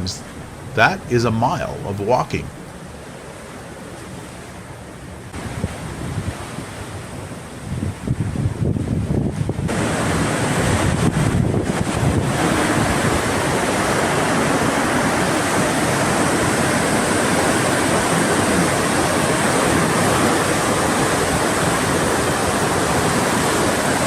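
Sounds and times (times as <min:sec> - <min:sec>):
sea: 0:00.0 - 0:24.0
wind buffeting microphone: 0:05.3 - 0:24.0.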